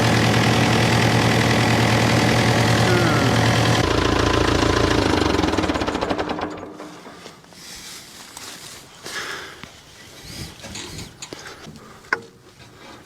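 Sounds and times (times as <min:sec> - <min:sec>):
tractor engine running: 0:00.0 - 0:08.6.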